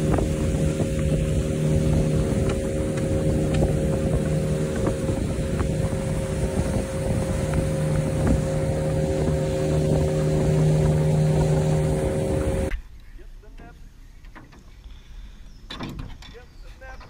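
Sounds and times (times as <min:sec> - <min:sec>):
outboard motor droning: 0:00.0 - 0:12.7
wind on microphone: 0:00.0 - 0:12.7
water rushing along hull: 0:00.0 - 0:12.8.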